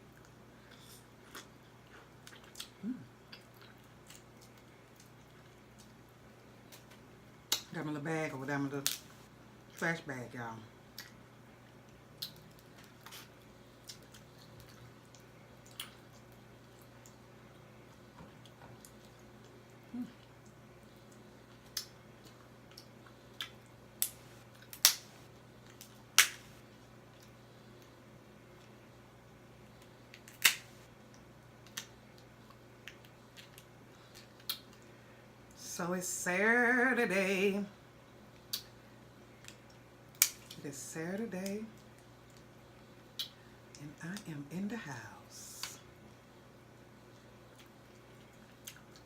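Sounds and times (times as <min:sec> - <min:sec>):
steady low hum: 0:00.0 - 0:49.0
crab shells cracking: 0:22.7 - 0:25.1, 0:30.1 - 0:30.8.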